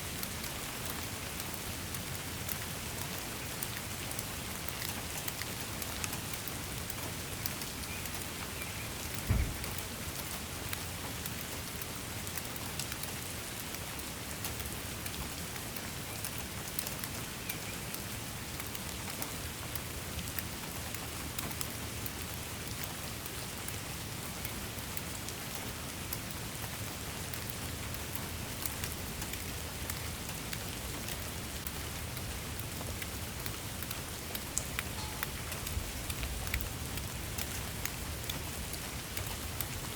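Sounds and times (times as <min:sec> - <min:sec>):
raindrops ticking on a surface: 0:00.0 - 0:39.9
steady rain falling: 0:00.0 - 0:39.9
low thump: 0:09.3 - 0:09.8.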